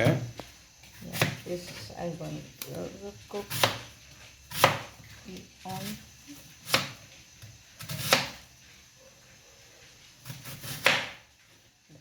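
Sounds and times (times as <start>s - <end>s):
knife chopping on cutting board: 1.0s - 1.8s, 3.4s - 3.9s, 4.5s - 5.0s, 5.8s - 8.4s, 10.2s - 11.3s.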